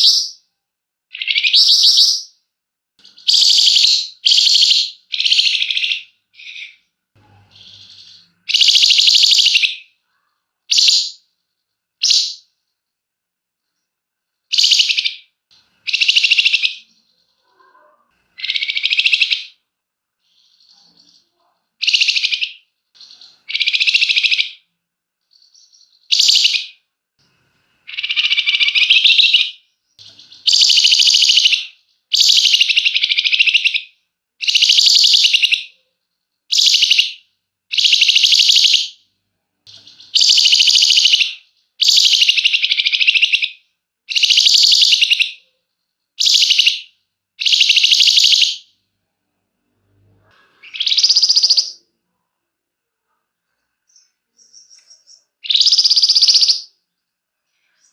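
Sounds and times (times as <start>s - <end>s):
songbird singing rapid trills: 3.0s - 6.8s, 7.5s - 9.8s, 25.3s - 26.7s, 27.9s - 35.7s, 36.5s - 38.9s, 39.7s - 43.5s, 44.1s - 45.4s, 46.2s - 46.8s, 47.4s - 48.6s, 53.9s - 56.7s.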